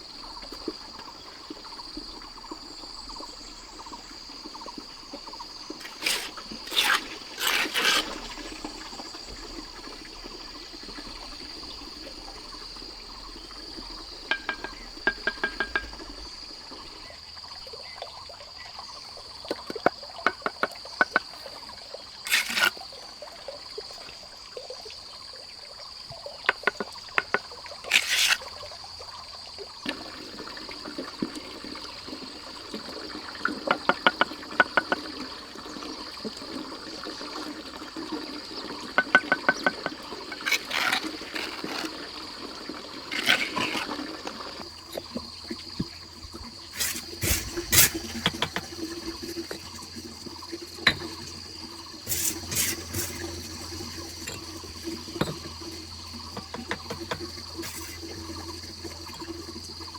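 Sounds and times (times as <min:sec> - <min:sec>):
high insect drone: 0:43.2 - 0:59.9.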